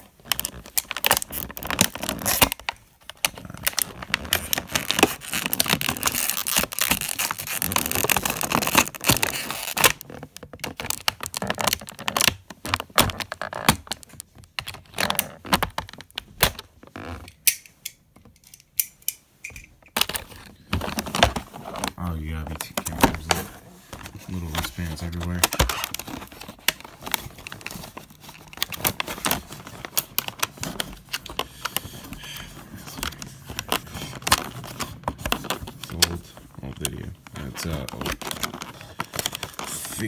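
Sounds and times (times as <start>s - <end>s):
plastic and cardboard crackling: 0.0s - 18.4s, 19.2s - 40.0s
plastic parts clicking: 17.2s - 23.4s.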